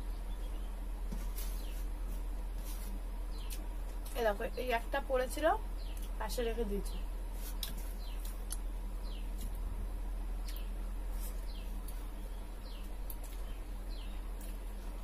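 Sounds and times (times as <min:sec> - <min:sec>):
bird chirping: 0:00.0 - 0:01.9, 0:03.2 - 0:03.7, 0:05.7 - 0:09.4, 0:10.4 - 0:14.8
steady low hum: 0:00.0 - 0:15.0.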